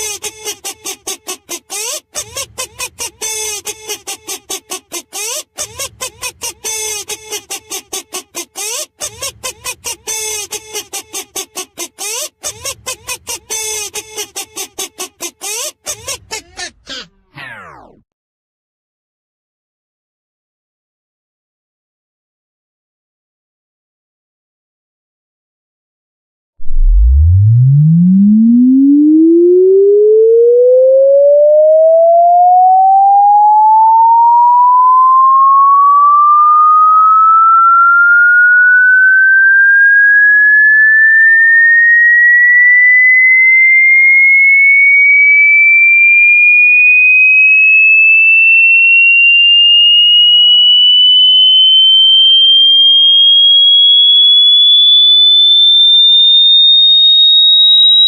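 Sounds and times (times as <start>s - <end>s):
electronic sine tone sweeping upward: 17.3s - 18.0s, 26.6s - 58.0s.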